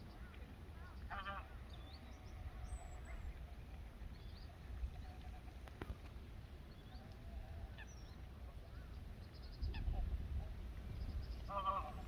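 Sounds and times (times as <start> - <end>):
waterfowl calls: 0.2 - 1.7, 11.4 - 12.0
wind rumble on microphone: 0.8 - 12.0.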